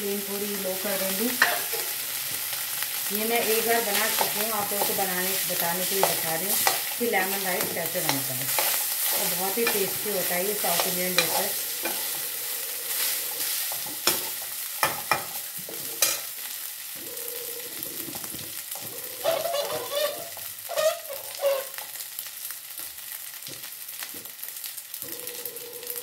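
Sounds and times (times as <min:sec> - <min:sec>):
rice sizzling in hot oil: 0:00.0 - 0:26.0
spoon scraping a pan: 0:01.3 - 0:02.0, 0:03.3 - 0:16.4, 0:17.0 - 0:22.0
spoon clanking against pan: 0:01.4 - 0:01.9, 0:04.0 - 0:05.1, 0:05.8 - 0:06.9, 0:07.5 - 0:10.0, 0:10.7 - 0:12.2, 0:13.7 - 0:16.3.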